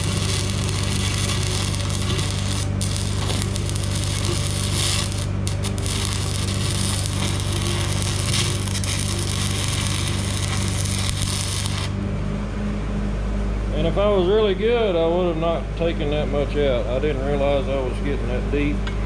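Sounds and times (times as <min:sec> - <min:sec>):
welding arc crackling: 0:00.0 - 0:12.0
welding machine hum: 0:00.0 - 0:12.0.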